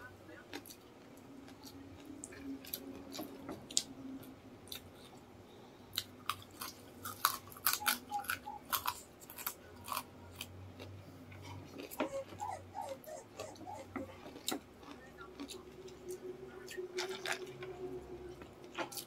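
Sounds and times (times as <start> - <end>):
crunchy chewing: 0.5 - 3.9, 5.9 - 19.0.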